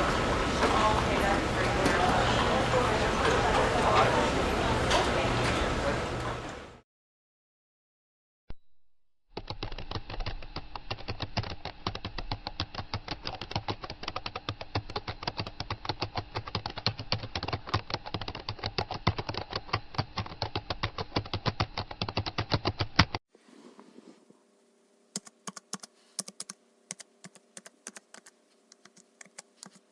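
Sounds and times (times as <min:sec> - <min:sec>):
fast typing on keyboard: 0:09.4 - 0:23.2, 0:25.2 - 0:29.9.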